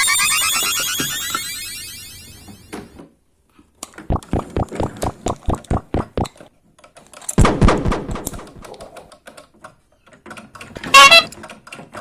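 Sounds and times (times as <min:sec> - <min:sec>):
hard clicks and taps: 0:03.8 - 0:12.0
loud clatter: 0:07.4 - 0:09.0.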